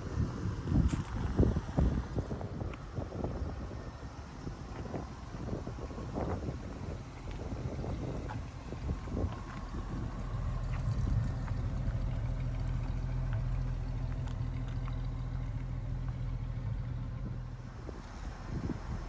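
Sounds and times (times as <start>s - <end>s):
car engine running steadily: 0.0s - 19.0s.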